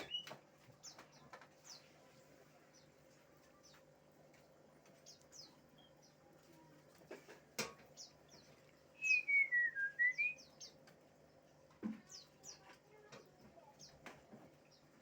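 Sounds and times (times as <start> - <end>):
bird singing chirps and whistles: 0.0 - 0.3, 9.0 - 10.7.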